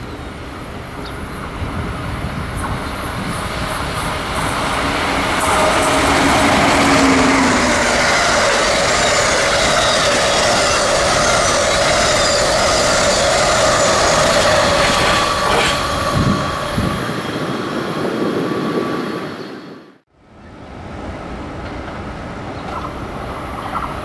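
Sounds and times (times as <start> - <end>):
train wheels rushing on rail: 0.0 - 20.0, 20.9 - 24.0
wheels squealing: 2.6 - 19.6.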